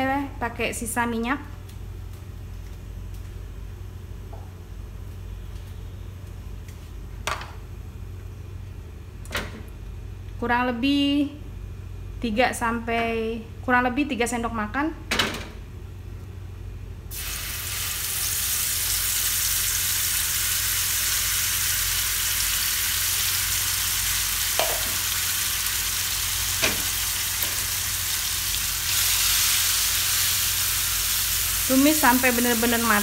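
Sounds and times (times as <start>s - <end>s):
chili paste sizzling in oil: 17.1s - 33.0s
light knocks in frying pan: 24.6s - 25.0s, 26.6s - 27.6s.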